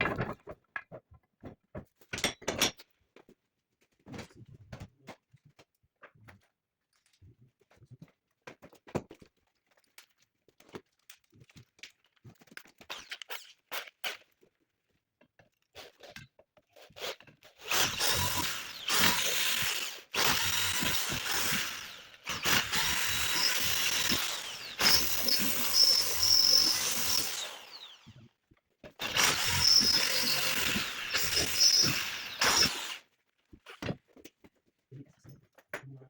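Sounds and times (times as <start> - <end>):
handheld power tool running: 17.0 - 28.2, 28.9 - 33.1.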